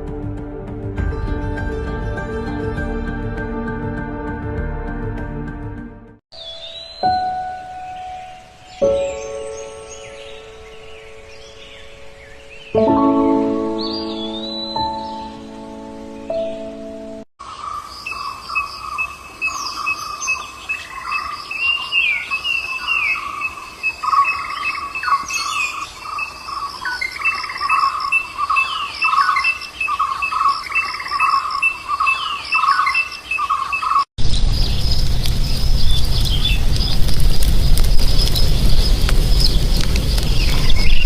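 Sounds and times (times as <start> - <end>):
birds chirping: 6.3 - 41.0
loud rumbling noise: 34.2 - 41.0.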